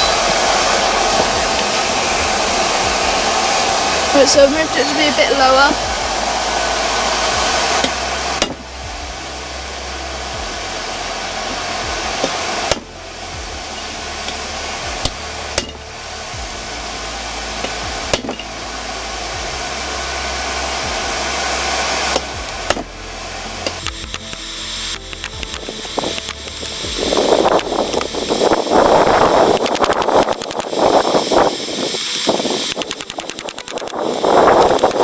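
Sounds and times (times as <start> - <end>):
air blower rushing: 0.0 - 12.9, 23.6 - 35.0.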